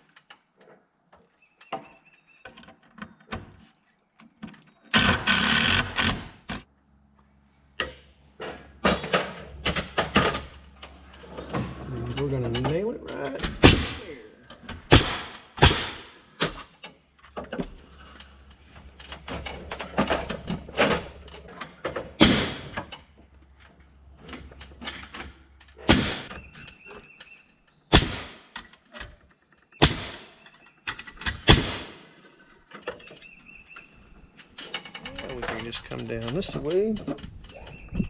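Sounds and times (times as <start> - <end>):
hammer striking nails: 14.7 - 16.6, 29.8 - 30.3.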